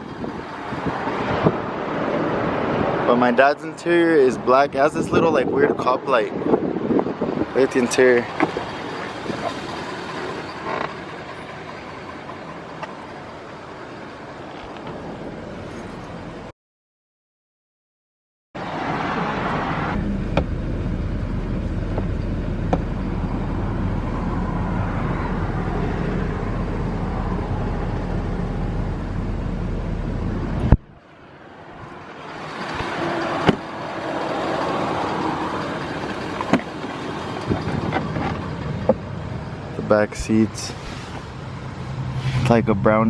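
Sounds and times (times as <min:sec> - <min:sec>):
truck engine idling: 0:07.5 - 0:14.4, 0:31.8 - 0:43.0.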